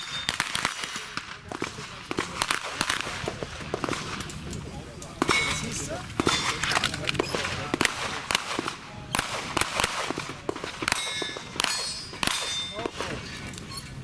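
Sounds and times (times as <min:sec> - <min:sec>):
steel targets clanging: 0:00.0 - 0:00.4, 0:03.8 - 0:07.9, 0:10.1 - 0:13.9
handgun shots: 0:05.2 - 0:13.2.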